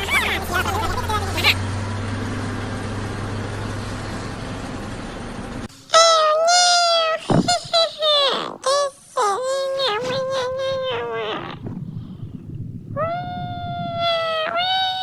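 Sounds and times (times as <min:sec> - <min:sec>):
high-pitched crying voice: 0:05.9 - 0:11.6, 0:13.0 - 0:15.0.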